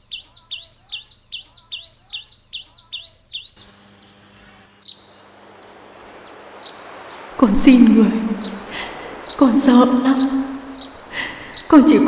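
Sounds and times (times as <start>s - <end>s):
small bird chirping: 0.0s - 12.0s
faint steady hiss: 3.6s - 12.0s
low hum: 3.6s - 12.0s.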